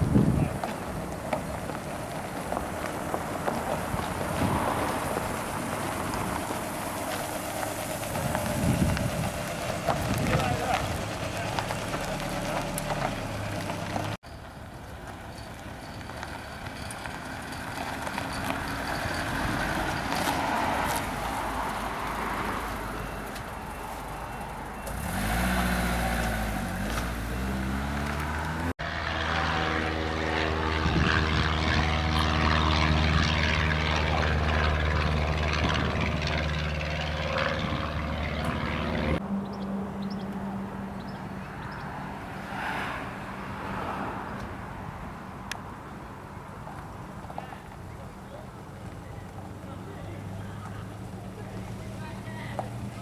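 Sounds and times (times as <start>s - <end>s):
low engine running: 0.0s - 14.2s, 22.8s - 39.2s
engine note rising and falling: 24.8s - 42.1s.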